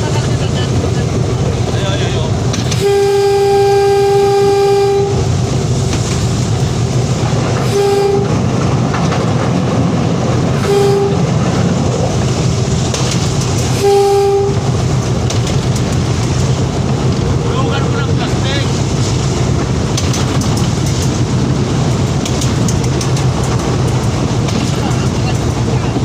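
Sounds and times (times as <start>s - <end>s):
train rumbling on rails: 0.0s - 26.0s
train horn blasts: 2.7s - 5.3s, 7.6s - 8.4s, 10.6s - 11.4s, 13.7s - 14.7s.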